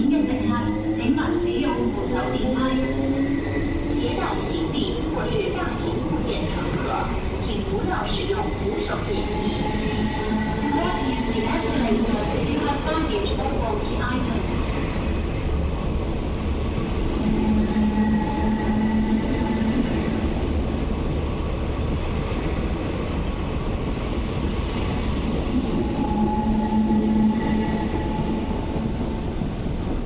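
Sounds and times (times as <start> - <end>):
train wheels rumbling: 0.0 - 30.0
humming tone: 17.2 - 20.4, 25.5 - 29.4.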